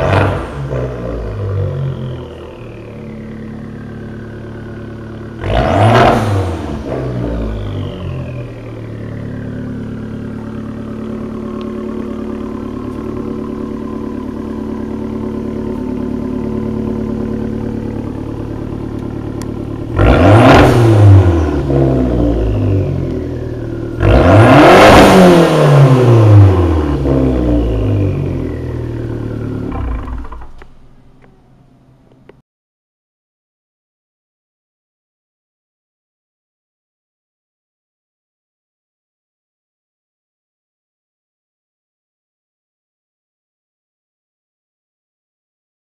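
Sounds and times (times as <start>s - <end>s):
car engine idling and revving: 0.0s - 32.4s.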